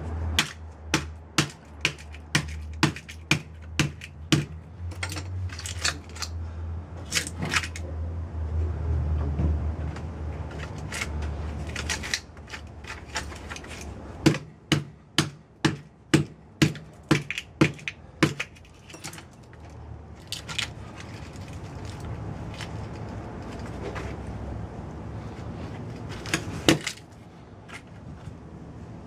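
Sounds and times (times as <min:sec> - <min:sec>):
hammer knocking on metal: 0:14.2 - 0:18.4.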